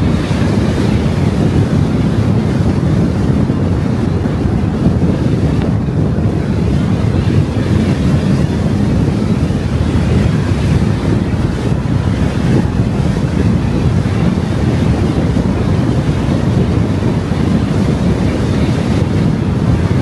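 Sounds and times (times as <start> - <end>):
car road noise: 0.0 - 20.0
wind buffeting microphone: 0.0 - 20.0.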